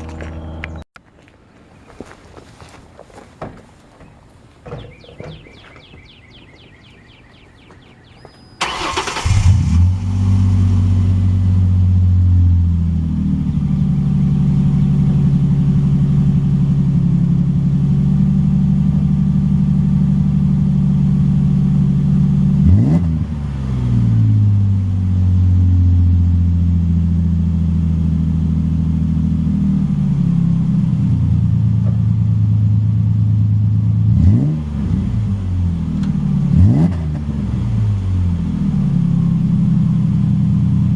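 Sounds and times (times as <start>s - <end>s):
engine starting up: 8.6s - 10.2s.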